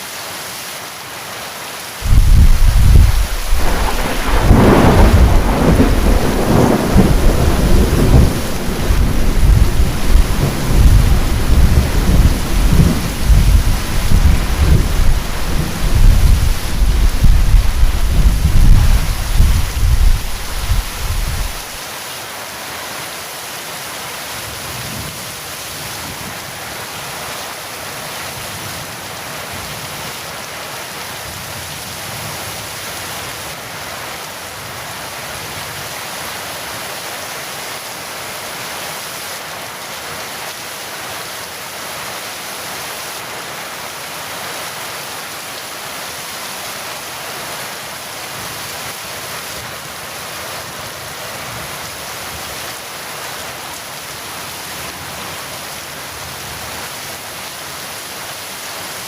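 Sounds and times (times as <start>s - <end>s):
heavy rain falling: 0.0s - 59.0s
thunder rumble: 2.0s - 21.8s.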